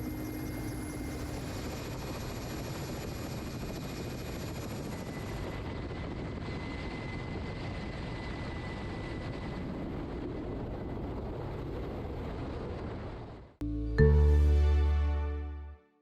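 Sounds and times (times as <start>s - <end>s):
aircraft engine drone: 0.0s - 6.7s.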